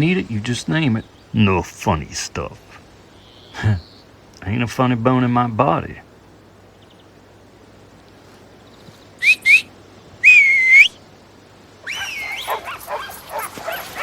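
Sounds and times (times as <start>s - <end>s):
person whistling: 9.2s - 11.0s
dogs yipping and barking: 11.8s - 14.0s.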